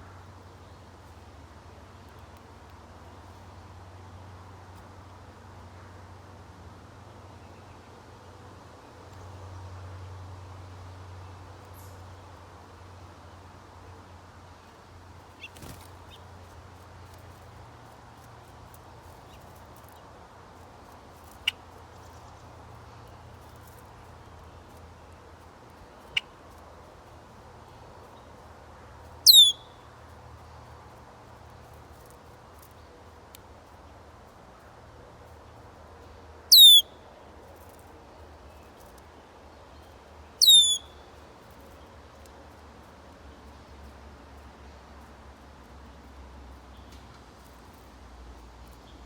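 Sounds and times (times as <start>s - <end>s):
outdoor background hiss: 0.0s - 49.0s
songbird sharp calls: 29.2s - 29.9s, 36.5s - 37.0s, 40.4s - 41.1s.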